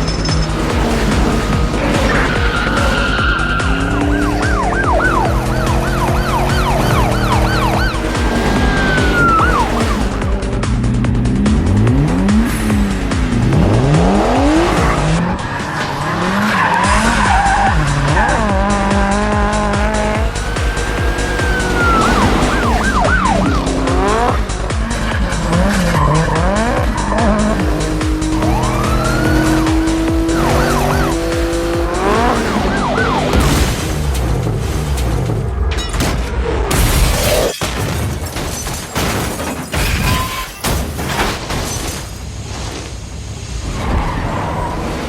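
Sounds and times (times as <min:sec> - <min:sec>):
tyres squealing: 0:00.0 - 0:10.5, 0:14.8 - 0:33.3, 0:39.3 - 0:41.1
car engines revving: 0:00.0 - 0:37.6, 0:38.2 - 0:45.0
wavering siren: 0:01.8 - 0:10.4, 0:19.9 - 0:24.3, 0:28.2 - 0:33.4.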